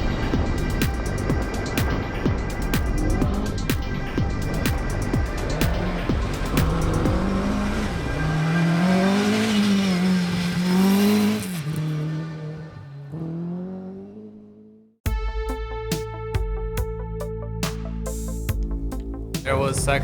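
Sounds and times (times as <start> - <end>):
music: 0.0 - 7.9, 15.0 - 20.0
car engine revving: 0.0 - 15.0.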